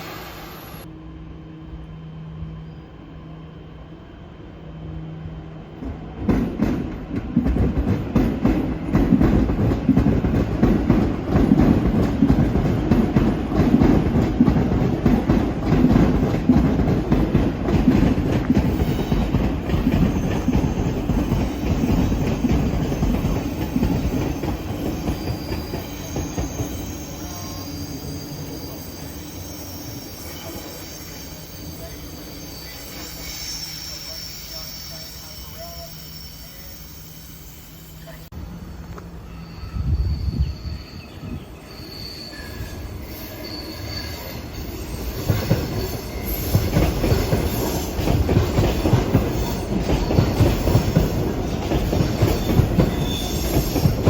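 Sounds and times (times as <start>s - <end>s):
high wheel squeals: 18.6s - 54.0s.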